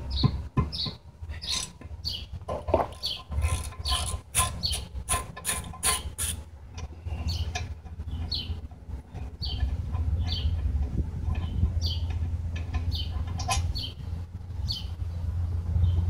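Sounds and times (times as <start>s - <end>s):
small birds chirping: 0.0s - 4.9s, 5.8s - 16.0s
clunk: 2.5s - 6.0s
steady low rumble: 6.4s - 16.0s.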